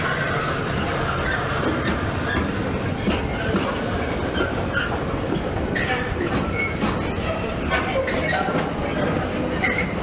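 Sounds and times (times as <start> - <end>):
wheel squeals: 0.0 - 2.6, 4.3 - 5.0, 5.7 - 8.6, 9.5 - 10.0
train rumble: 0.0 - 10.0
wheels clattering over rail joints: 0.0 - 10.0.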